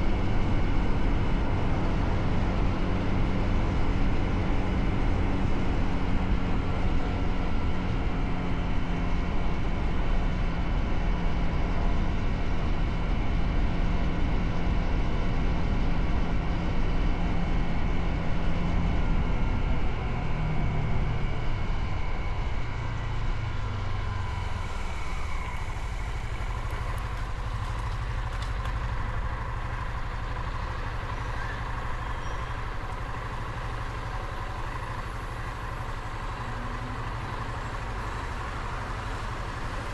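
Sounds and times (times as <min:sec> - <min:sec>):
motorcycle engine running: 0:21.2 - 0:39.9.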